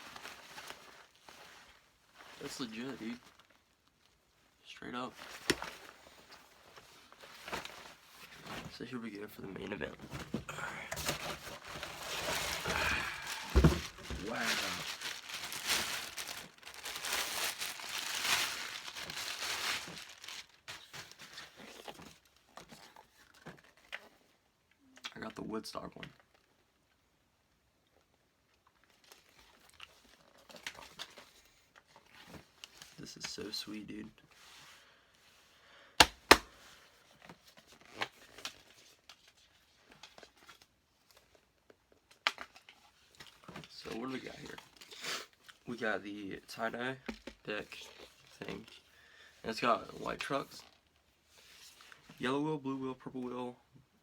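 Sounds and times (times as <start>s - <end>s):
packaging crinkling and tearing: 11.1s - 24.1s, 37.3s - 41.4s.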